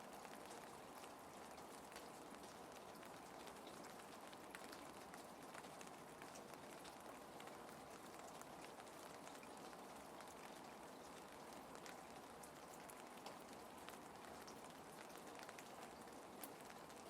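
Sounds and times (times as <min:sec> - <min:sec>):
gentle rain: 0:00.0 - 0:17.0.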